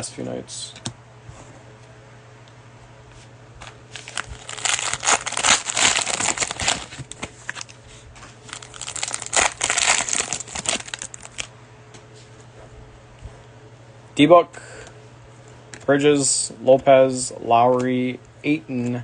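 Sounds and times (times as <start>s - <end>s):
cellophane wrapper crinkling: 3.9s - 7.8s, 8.4s - 11.5s.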